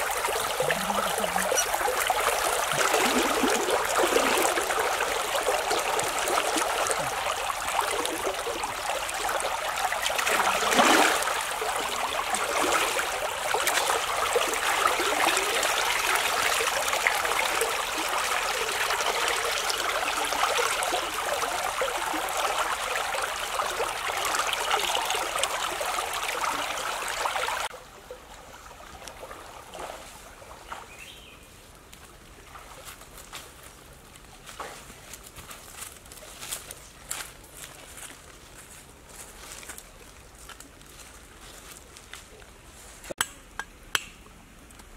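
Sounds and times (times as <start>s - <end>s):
river water splashing around legs: 0.0s - 23.2s, 32.3s - 33.2s
outdoor background: 0.0s - 44.9s.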